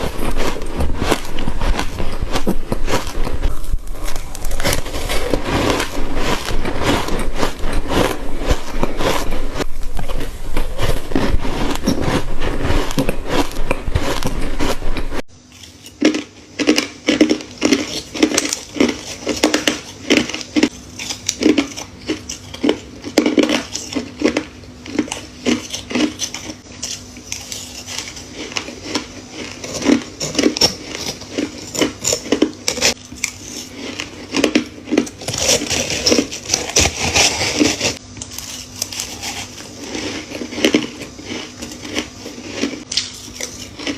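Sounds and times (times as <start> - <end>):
faint steady hum: 0.0 - 43.9
ice being crunched: 27.4 - 43.9.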